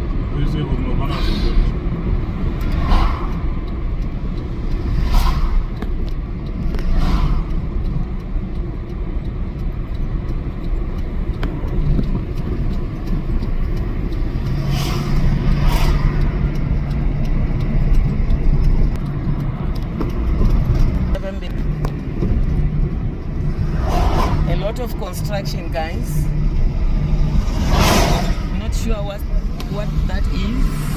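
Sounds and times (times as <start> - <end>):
car engine and tyres rumbling: 0.0 - 30.9
passing swishes: 2.4 - 5.8, 6.8 - 7.7, 23.4 - 24.5, 26.3 - 28.6.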